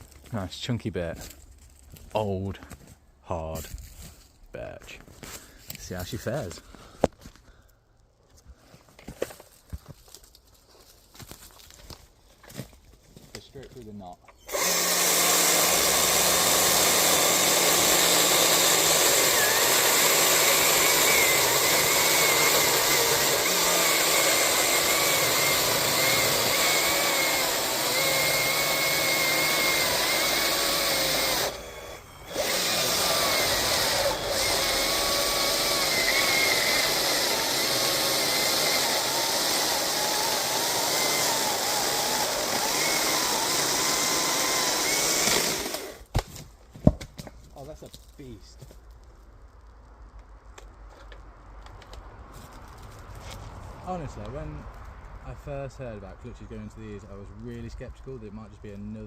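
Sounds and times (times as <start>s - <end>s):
chainsaw cutting through log: 14.4s - 46.2s.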